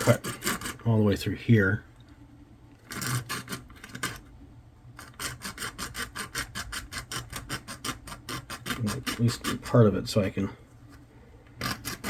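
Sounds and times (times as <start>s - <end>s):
hand tool scraping strokes: 0.0s - 0.9s, 2.9s - 4.2s, 5.0s - 12.0s.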